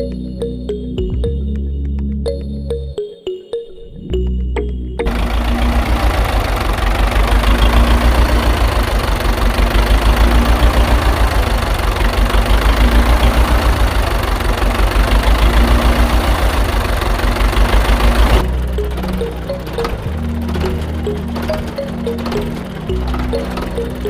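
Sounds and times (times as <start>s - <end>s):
tractor engine idling: 5.0s - 24.0s.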